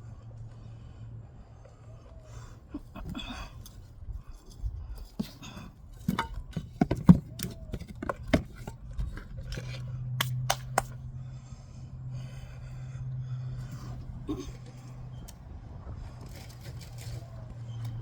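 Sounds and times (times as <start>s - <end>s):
low engine hum: 0.0s - 18.0s
hands clicking and tapping: 10.2s - 11.0s.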